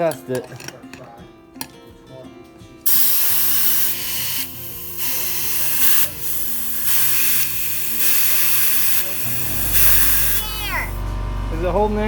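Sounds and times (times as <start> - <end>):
compressed air hissing: 2.9 - 11.0.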